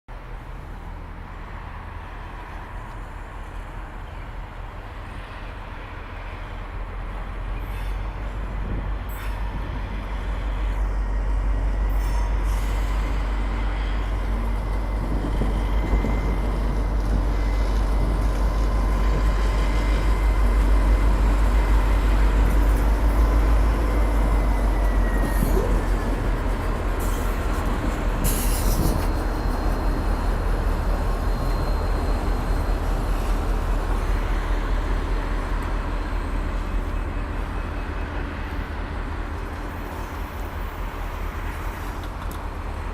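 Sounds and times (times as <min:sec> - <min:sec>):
train engine rumble and rolling: 0:00.1 - 0:42.9
high squeal tone: 0:24.4 - 0:26.2.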